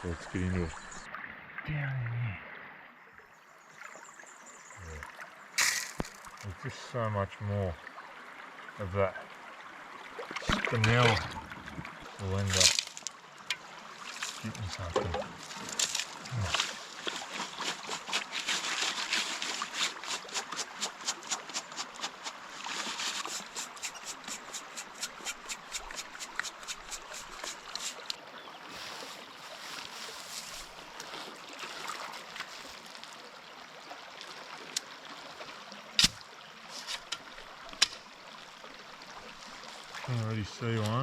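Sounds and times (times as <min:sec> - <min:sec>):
stream trickling: 0:00.0 - 0:41.0
gravel rattling in a sieve: 0:05.6 - 0:06.5, 0:12.3 - 0:13.1, 0:15.3 - 0:28.1.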